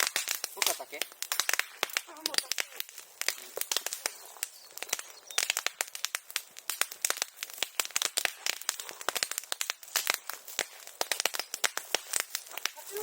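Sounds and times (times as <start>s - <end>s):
bonfire crackling and popping: 0.0s - 13.0s.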